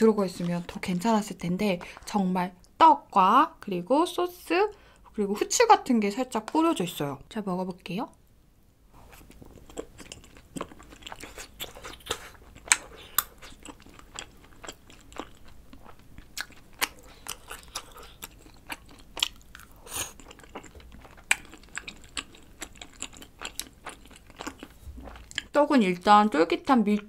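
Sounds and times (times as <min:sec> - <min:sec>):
chewing with wet mouth smacks: 0:09.1 - 0:25.6.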